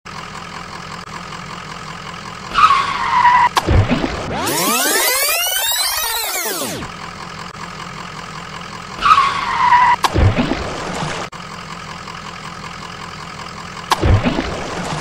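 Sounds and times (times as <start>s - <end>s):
vehicle engine: 0.1s - 15.0s
tyre skid squeal: 2.5s - 3.6s, 9.0s - 10.0s.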